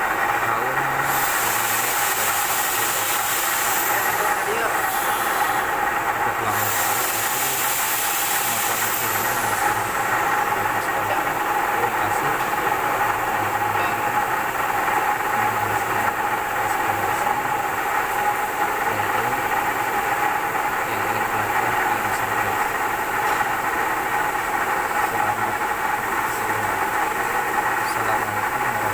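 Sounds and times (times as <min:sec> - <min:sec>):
milling machine whine: 0:00.0 - 0:28.9.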